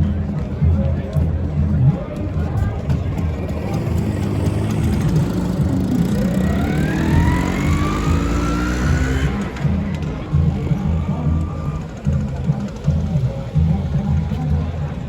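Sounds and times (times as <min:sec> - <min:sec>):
scooter engines running: 0:01.1 - 0:15.0
scooter revving and accelerating: 0:02.7 - 0:11.8.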